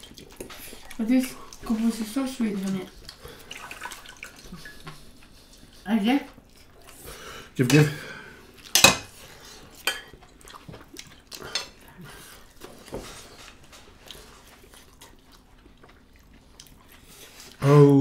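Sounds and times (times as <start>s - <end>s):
eating clicks and squishes: 0.0s - 5.7s, 8.6s - 17.6s.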